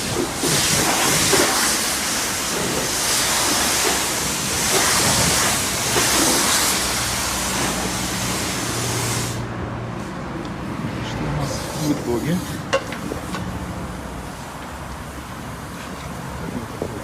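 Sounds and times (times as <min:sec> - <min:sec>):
high-pressure water spraying: 0:00.0 - 0:09.5.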